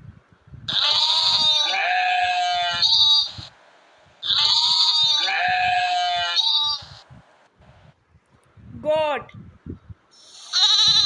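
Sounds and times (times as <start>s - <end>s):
sheep bleating: 0.7s - 3.4s, 4.2s - 7.0s, 10.3s - 11.0s.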